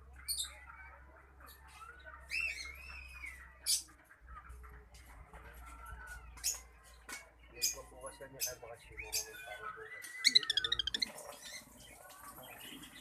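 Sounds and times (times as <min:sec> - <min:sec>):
cockatiel chattering and whistling: 0:10.0 - 0:11.2
sharp high bird chirp: 0:10.1 - 0:11.1.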